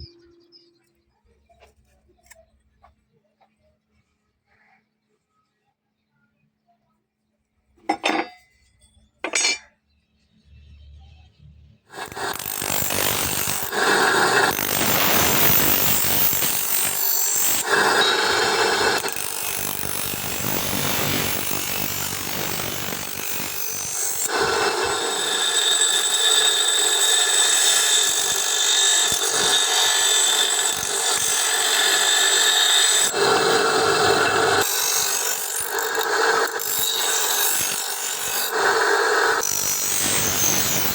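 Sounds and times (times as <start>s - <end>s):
grinder grinding steel: 9.2s - 9.7s, 11.9s - 40.9s.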